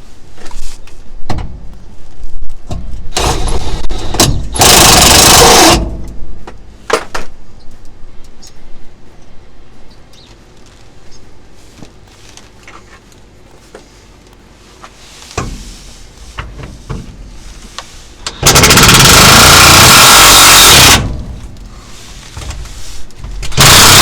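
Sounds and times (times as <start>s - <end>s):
handheld power tool running: 3.2s - 6.0s, 18.2s - 21.4s, 23.5s - 24.0s.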